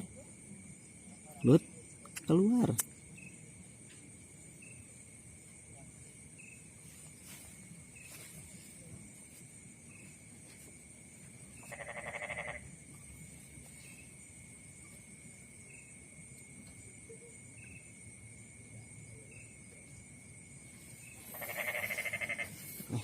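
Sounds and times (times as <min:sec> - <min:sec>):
night insects trilling: 0:00.0 - 0:23.0
pulsed bleat-like animal call: 0:11.7 - 0:12.6, 0:21.3 - 0:22.6.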